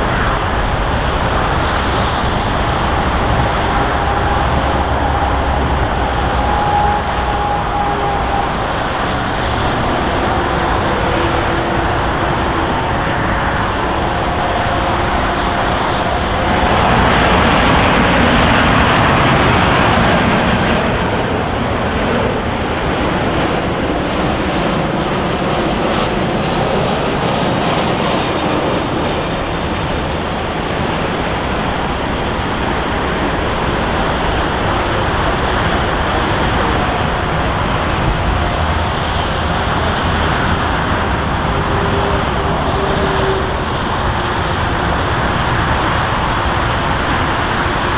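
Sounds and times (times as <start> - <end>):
jet engines roaring: 0.0 - 47.9.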